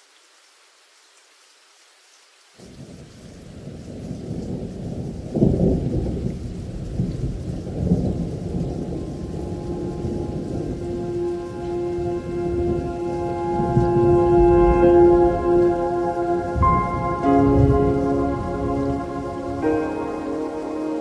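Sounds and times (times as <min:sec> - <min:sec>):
rain: 0:00.0 - 0:21.0
thunder rumbling: 0:02.8 - 0:21.0
slow sustained musical tones: 0:08.4 - 0:21.0.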